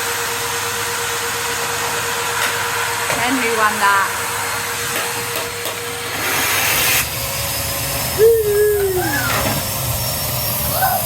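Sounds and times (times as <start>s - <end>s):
vacuum cleaner running: 0.0s - 11.0s
high voice-like cry gliding down: 8.2s - 9.5s, 10.7s - 11.0s.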